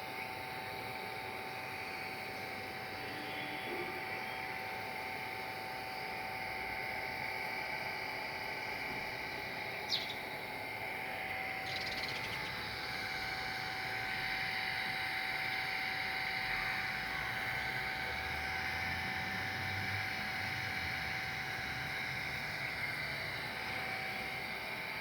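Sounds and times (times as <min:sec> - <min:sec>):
steady background hum: 0:00.0 - 0:25.0
bird chirping: 0:09.9 - 0:10.2, 0:11.6 - 0:12.6.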